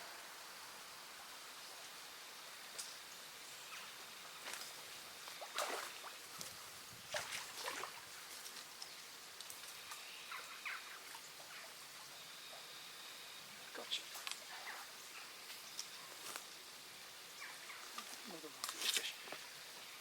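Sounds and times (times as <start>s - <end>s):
faint outdoor hiss: 0.0s - 20.0s.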